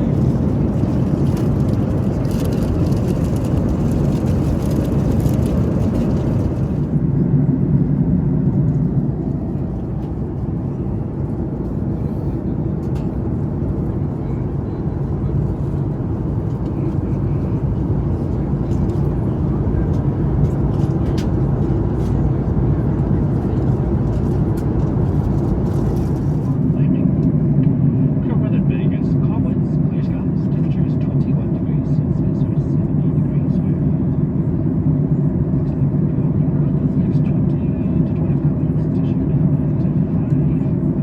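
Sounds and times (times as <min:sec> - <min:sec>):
aircraft cabin engine rumble: 0:00.0 - 0:41.0.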